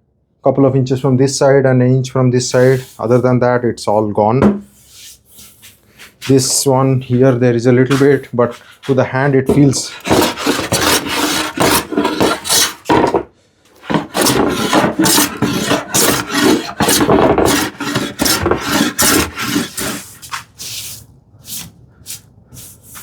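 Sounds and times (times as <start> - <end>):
hand plane strokes on wood: 7.9 - 20.4.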